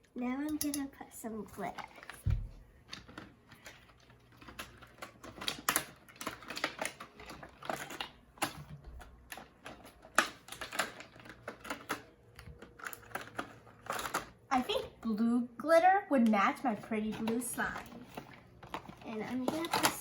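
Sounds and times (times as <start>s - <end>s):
plastic containers clicking and tapping: 17.1s - 20.0s.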